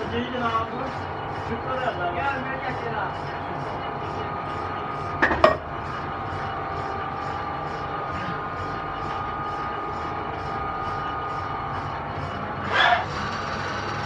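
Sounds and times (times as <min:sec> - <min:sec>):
pulsing high whine: 0:00.0 - 0:14.0
workshop machinery hum: 0:00.0 - 0:14.0.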